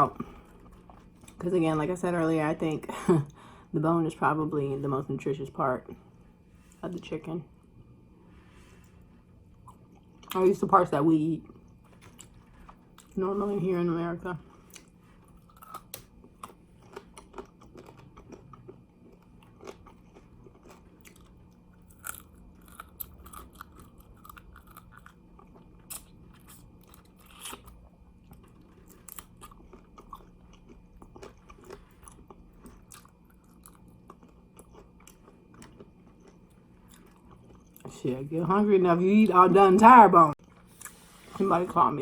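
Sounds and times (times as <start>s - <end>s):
faint steady hum: 0.0s - 42.0s
chewing and crunching chicken bones: 14.4s - 38.0s.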